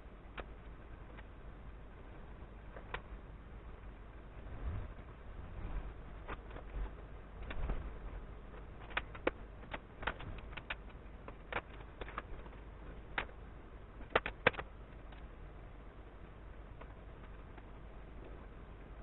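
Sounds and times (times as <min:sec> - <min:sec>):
low steady hum: 0:00.0 - 0:19.0
light clicks and taps of hand work: 0:14.0 - 0:15.3.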